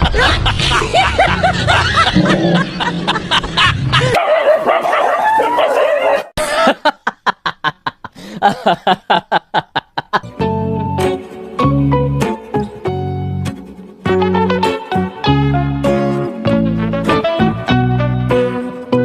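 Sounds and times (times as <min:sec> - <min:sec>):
dog barking and yipping: 0:04.1 - 0:06.4
background music: 0:10.2 - 0:19.0.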